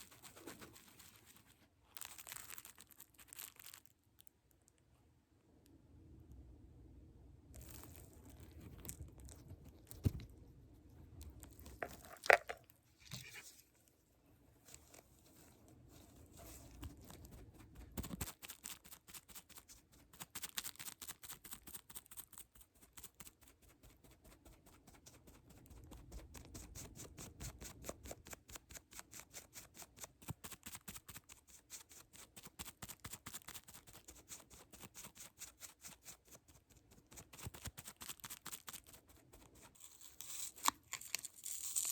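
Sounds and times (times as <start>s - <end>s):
soft rustling: 0.0s - 4.3s, 7.6s - 18.3s.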